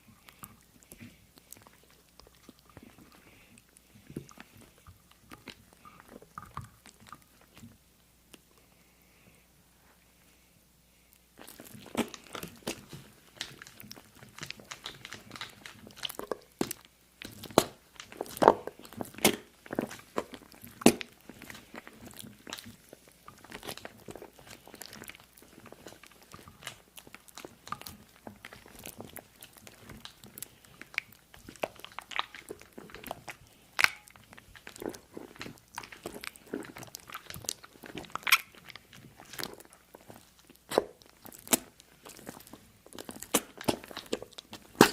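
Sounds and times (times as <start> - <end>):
crunching and chewing: 0.0 - 8.5, 11.1 - 44.9.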